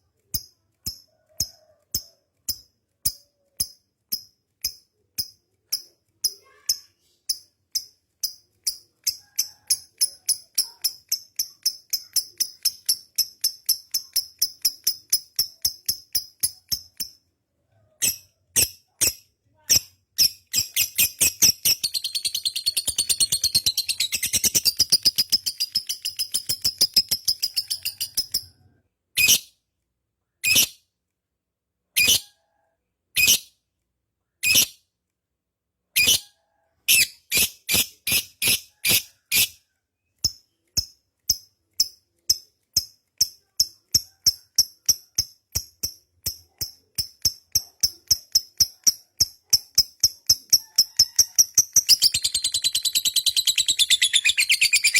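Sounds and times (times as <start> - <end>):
lovebird chattering trill and chirps: 5.2 - 17.1, 18.0 - 28.6, 32.0 - 32.3, 36.0 - 36.3, 36.9 - 39.6, 40.2 - 54.9.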